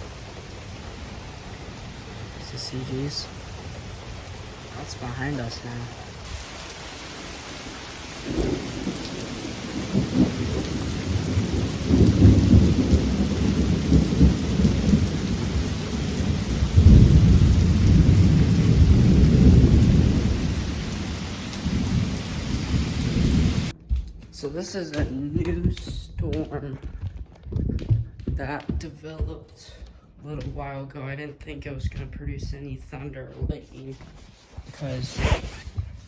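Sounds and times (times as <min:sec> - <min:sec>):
rain hissing: 0:00.0 - 0:23.8, 0:33.7 - 0:36.0
thunder rumbling: 0:00.0 - 0:30.8.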